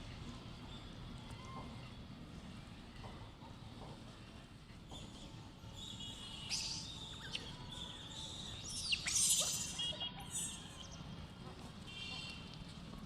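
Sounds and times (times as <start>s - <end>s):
outdoor background noise: 0.0s - 13.0s
thin animal chirps: 8.6s - 9.8s.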